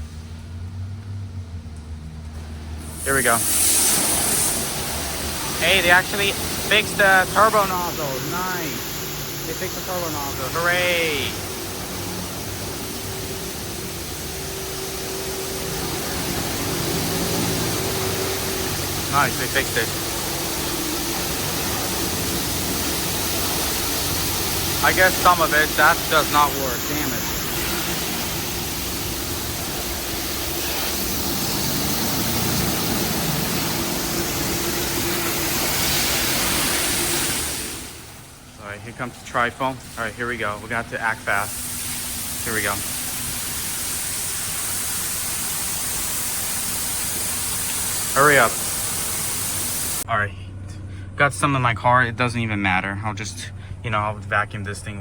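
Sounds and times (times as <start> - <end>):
low pump hum: 0.0 - 55.0
high-pressure water spray hiss: 2.4 - 50.1.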